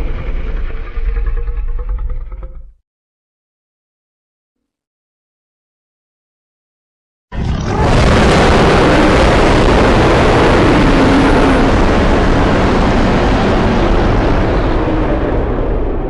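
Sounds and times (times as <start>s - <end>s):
monster roar: 7.3s - 15.9s.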